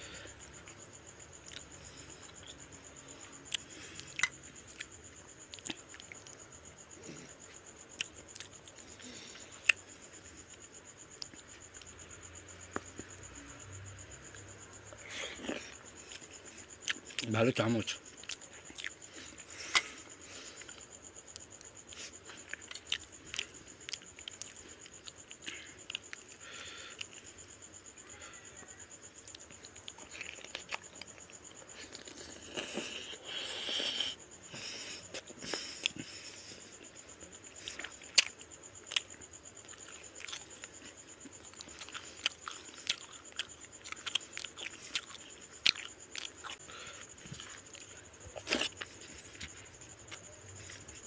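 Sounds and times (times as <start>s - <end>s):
wet chewing and lip smacks: 5.5s - 6.4s, 21.3s - 26.4s, 37.4s - 51.0s.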